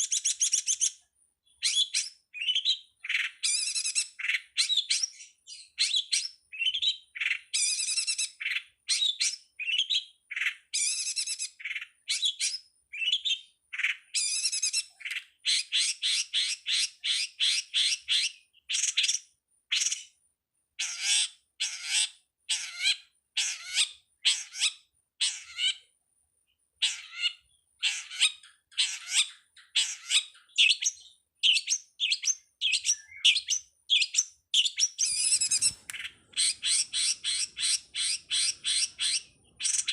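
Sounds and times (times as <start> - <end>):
bird chattering song: 0.0 - 20.2, 20.8 - 25.9, 26.5 - 39.9.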